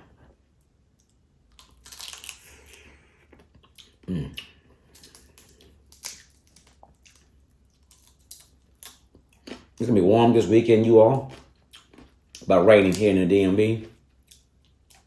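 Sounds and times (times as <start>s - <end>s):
crab shell crunching: 1.5s - 9.9s
wet clicks and smacks: 3.4s - 9.6s
low vocal sound: 4.0s - 4.6s.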